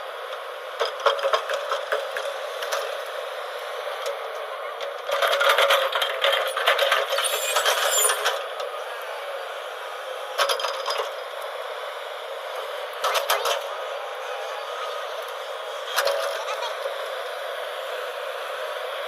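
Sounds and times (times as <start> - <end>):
backhoe loader machine hum: 0.0 - 19.0.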